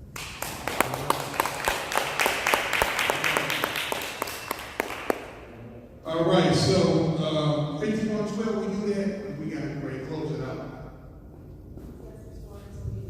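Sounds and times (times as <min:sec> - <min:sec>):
people applauding: 0:00.0 - 0:05.6.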